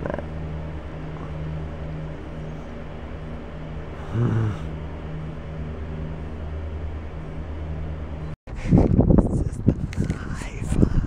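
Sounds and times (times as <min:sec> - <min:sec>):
low groan-like voice: 0:00.0 - 0:00.4, 0:01.0 - 0:01.6, 0:03.9 - 0:04.8
low motor drone: 0:00.0 - 0:11.0.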